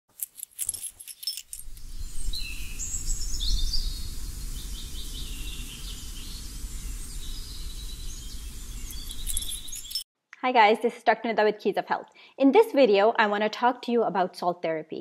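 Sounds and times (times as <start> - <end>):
birds chirping: 1.2 - 10.0.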